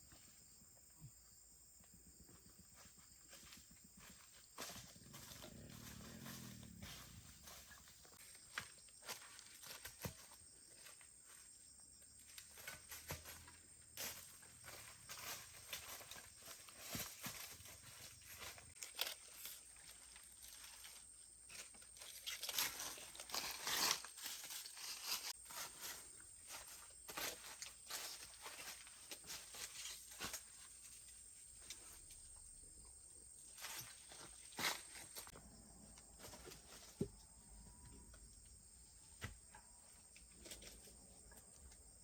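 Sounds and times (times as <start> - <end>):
faint outdoor background: 0.0 - 42.0
rustling and scraping: 2.3 - 11.5, 12.2 - 32.1.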